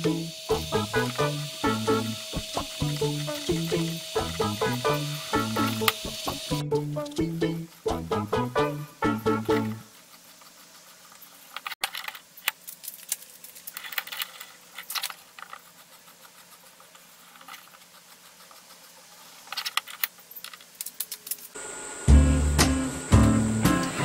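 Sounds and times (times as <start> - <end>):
music: 0.0 - 9.8, 22.1 - 24.0
faint steady hum: 0.0 - 24.0.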